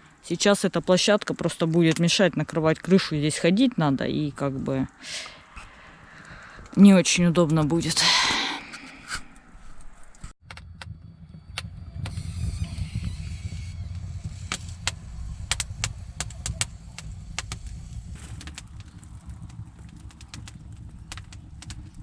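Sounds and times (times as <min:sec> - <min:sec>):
wood fire low rumble: 0:09.4 - 0:22.0
fire crackles and pops: 0:09.7 - 0:22.0.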